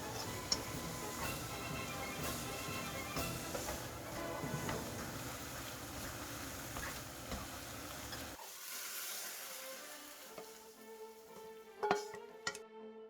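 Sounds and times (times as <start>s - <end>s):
faint background music: 0.0s - 6.1s, 8.8s - 13.0s
pot hissing: 0.0s - 12.2s.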